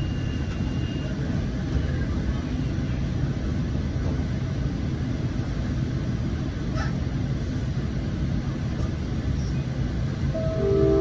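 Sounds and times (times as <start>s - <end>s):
diesel locomotive low rumble: 0.0s - 11.0s.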